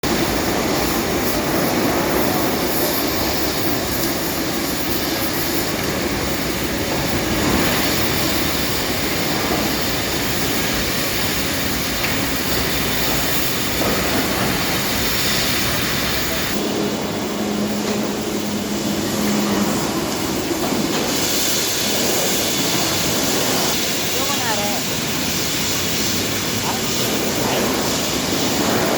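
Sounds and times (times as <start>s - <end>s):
cutting machinery rumble and hiss: 0.0s - 28.9s
steady machine hum: 0.0s - 28.9s.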